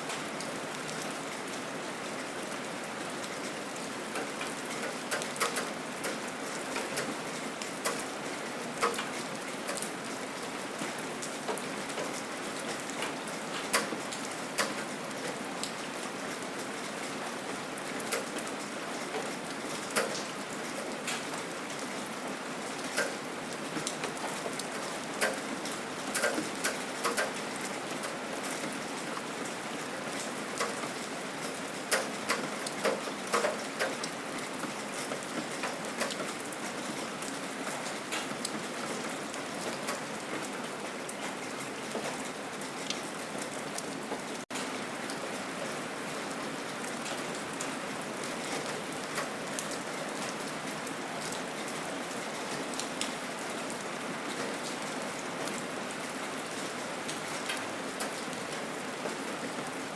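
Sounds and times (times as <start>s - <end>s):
gentle rain: 0.0s - 59.9s.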